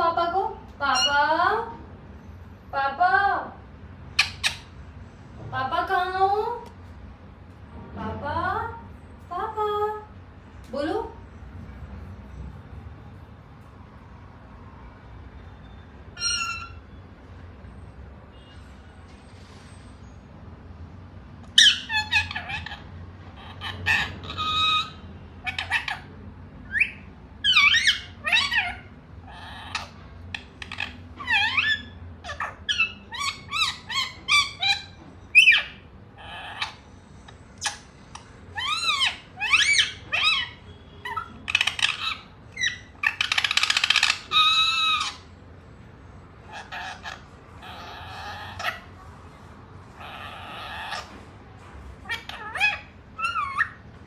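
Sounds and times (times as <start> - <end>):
parakeet squawking: 0.8 - 1.3, 4.1 - 4.8, 16.1 - 16.9, 21.5 - 45.4, 46.3 - 49.1, 49.8 - 51.3, 52.0 - 54.0.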